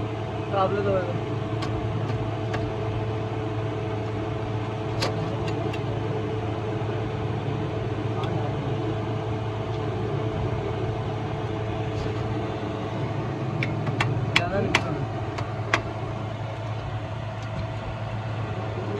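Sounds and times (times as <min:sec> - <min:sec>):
engine idling: 0:00.0 - 0:18.9.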